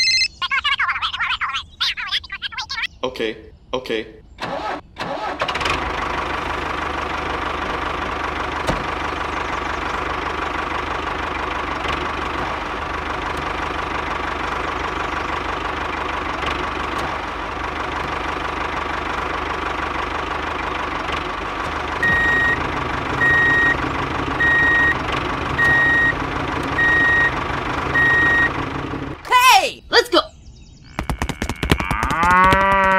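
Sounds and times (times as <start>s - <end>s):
miniature tractor engine idling: 5.5s - 29.2s
reversing alarm beeping: 22.0s - 23.8s, 24.4s - 25.0s, 25.6s - 26.2s, 26.8s - 28.6s.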